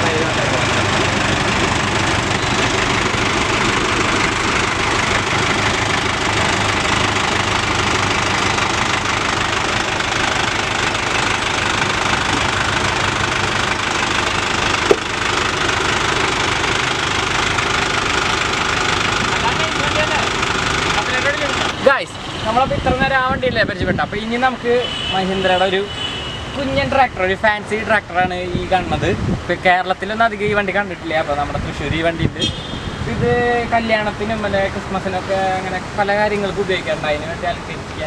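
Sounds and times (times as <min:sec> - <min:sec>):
diesel engine running: 0:00.0 - 0:21.8
short sharp click: 0:14.9 - 0:15.1.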